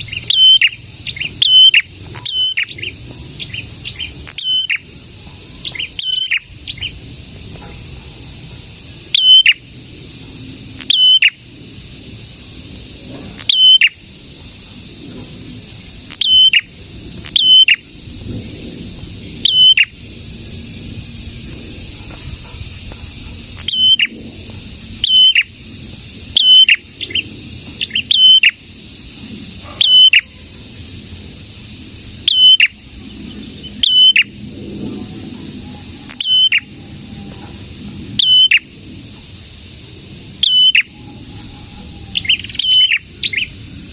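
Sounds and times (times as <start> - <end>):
bird calling sharp notes: 0.0 - 4.9, 5.6 - 6.9, 9.1 - 9.6, 10.8 - 11.4, 13.4 - 14.0, 16.1 - 17.8, 19.4 - 19.9, 23.6 - 24.1, 25.0 - 25.5, 26.4 - 27.2, 27.8 - 28.6, 29.8 - 30.4, 32.3 - 32.8, 33.6 - 34.4, 36.0 - 36.8, 38.2 - 38.7, 40.4 - 43.5.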